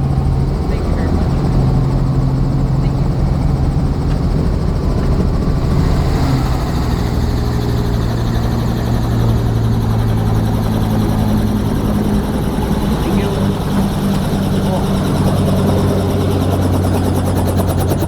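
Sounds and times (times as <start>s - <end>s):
helicopter rotor and engine drone: 0.0s - 18.0s.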